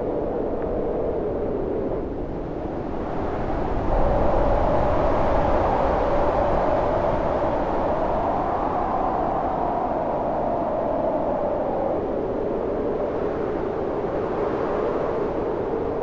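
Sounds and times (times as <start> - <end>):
storm wind howling: 0.0 - 16.0.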